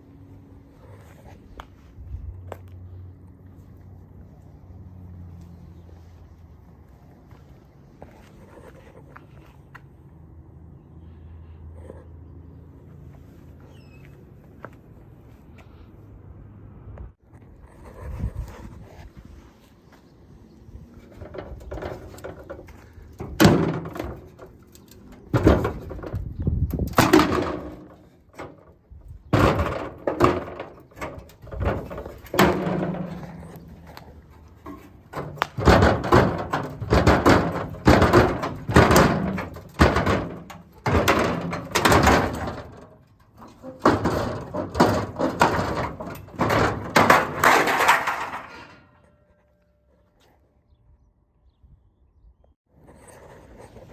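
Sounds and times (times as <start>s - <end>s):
heavy bangs and knocks: 21.2s - 24.6s, 26.9s - 28.7s, 29.3s - 48.6s.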